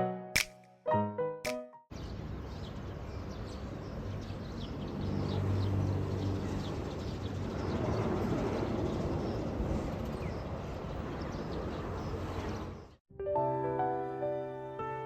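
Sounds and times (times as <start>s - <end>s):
musical notes: 0.0s - 1.9s
birds chirping: 1.9s - 13.0s.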